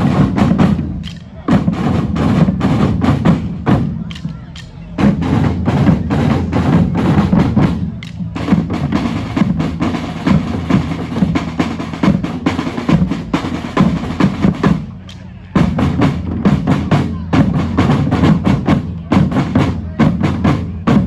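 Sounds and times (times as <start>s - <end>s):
bass drums beating: 0.0s - 21.0s
snare drums beating: 0.0s - 21.0s.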